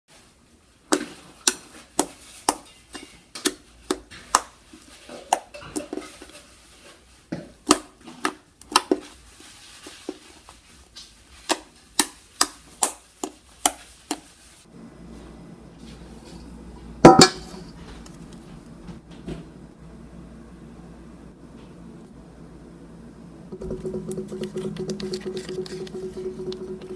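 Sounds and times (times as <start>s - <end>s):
containers and utensils clinking: 4.8s - 7.0s, 23.5s - 26.9s.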